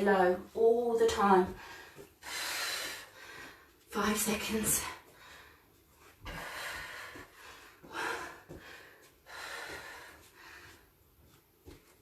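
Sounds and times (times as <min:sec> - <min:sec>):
woman breathing hard: 0:01.6 - 0:03.8, 0:05.0 - 0:11.1.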